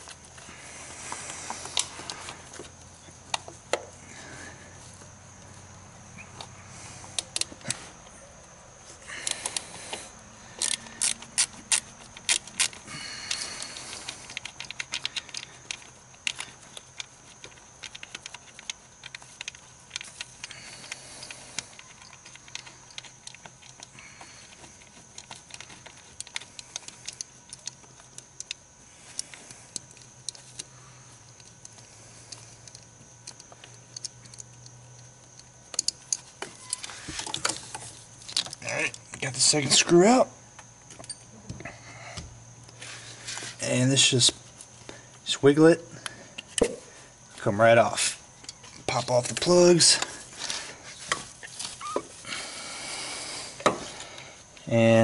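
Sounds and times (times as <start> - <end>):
faint steady hum: 0.0 - 55.0
socket wrench clicking: 10.6 - 13.4.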